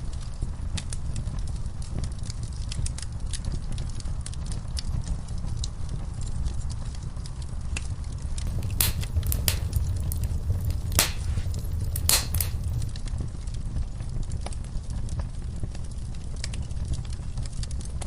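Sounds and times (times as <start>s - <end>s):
fireplace fire crackling: 8.4s - 13.1s.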